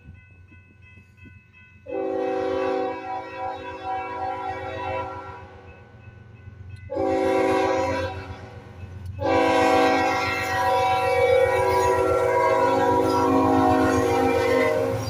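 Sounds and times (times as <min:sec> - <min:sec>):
train rumble: 0:00.0 - 0:15.0
locomotive air horn blasts: 0:01.9 - 0:05.6, 0:06.9 - 0:08.5, 0:09.2 - 0:15.0.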